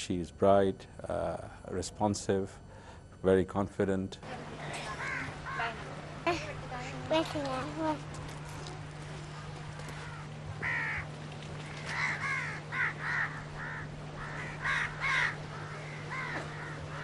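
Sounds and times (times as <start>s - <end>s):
steady low hum: 0.0s - 17.0s
crows cawing: 4.5s - 7.0s, 9.3s - 17.0s.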